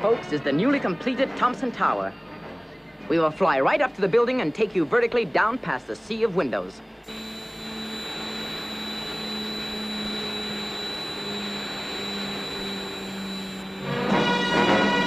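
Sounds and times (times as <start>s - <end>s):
aircraft engines droning: 7.0s - 14.2s.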